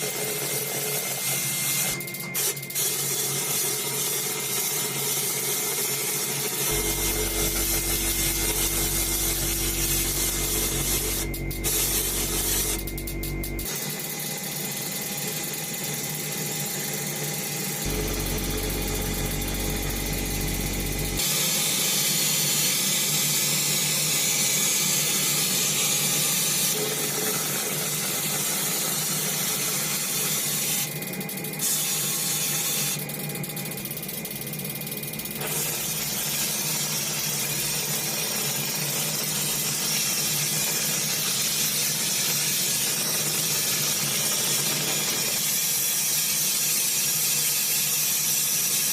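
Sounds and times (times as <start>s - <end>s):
motor hum: 6.7s - 13.8s, 17.8s - 21.2s.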